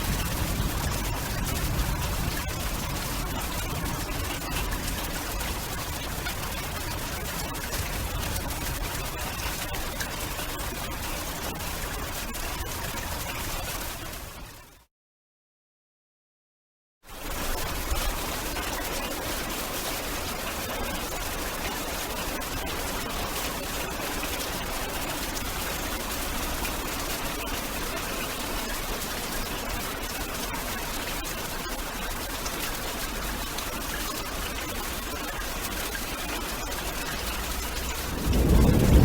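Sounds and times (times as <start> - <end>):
heavy rain: 0.0 - 14.2, 17.4 - 39.0.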